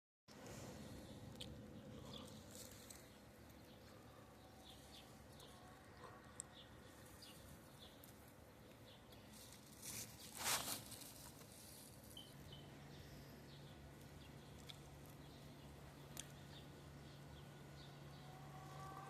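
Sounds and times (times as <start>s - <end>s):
low steady hum: 0.3s - 19.0s
rustling: 2.2s - 3.6s, 9.1s - 12.4s.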